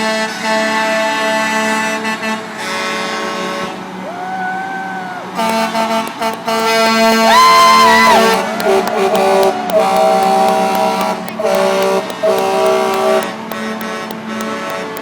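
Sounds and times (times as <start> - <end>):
truck air horn blasts: 0.0 - 4.0, 5.3 - 15.0
rising and falling horn tone: 5.4 - 14.2.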